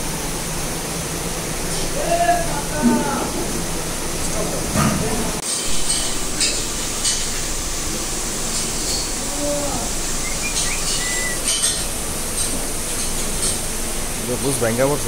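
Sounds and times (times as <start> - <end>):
steady background hiss: 0.0 - 15.0
whistle-like call: 10.1 - 11.8
bird chirps: 10.1 - 11.9.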